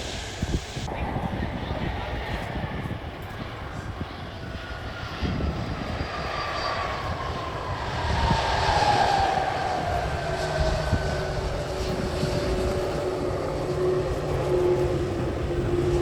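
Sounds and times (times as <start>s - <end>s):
airliner engines passing: 0.0s - 16.0s.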